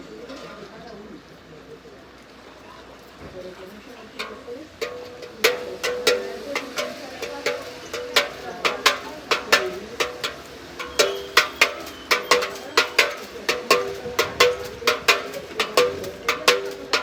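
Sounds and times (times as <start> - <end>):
small bells ringing: 4.2 - 17.0.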